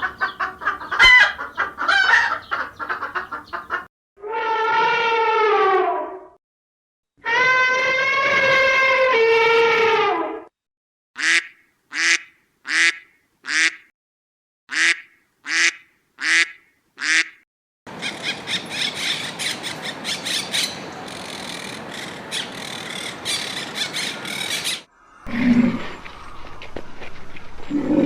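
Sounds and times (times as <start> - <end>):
parrot squawking and chattering: 0.0 - 3.8
duck quacking: 0.0 - 3.9, 11.2 - 13.9, 14.7 - 17.4.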